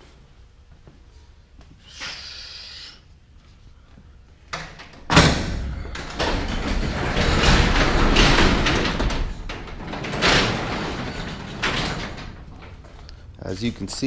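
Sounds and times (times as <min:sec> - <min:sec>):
large door rattling open: 0:04.6 - 0:13.1.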